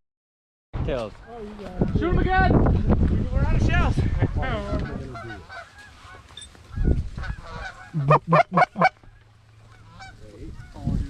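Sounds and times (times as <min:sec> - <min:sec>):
goose honks: 0:06.8 - 0:10.9.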